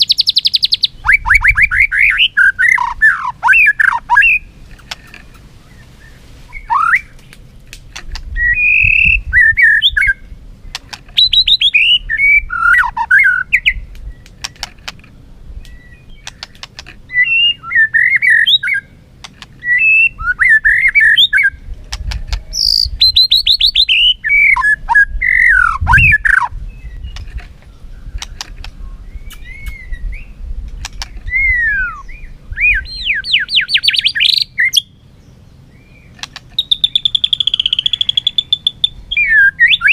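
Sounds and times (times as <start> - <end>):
bird singing whistled phrases: 0.0 - 4.5, 5.7 - 7.2, 8.4 - 10.3, 11.2 - 14.2, 17.1 - 19.0, 19.6 - 21.6, 22.5 - 28.2, 28.8 - 30.4, 31.3 - 35.0, 36.6 - 39.9
bird clicks: 4.7 - 5.4, 7.1 - 8.3, 10.7 - 11.2, 13.9 - 17.0, 19.2 - 19.6, 21.9 - 22.4, 27.1 - 29.8, 30.7 - 31.3, 36.1 - 38.5.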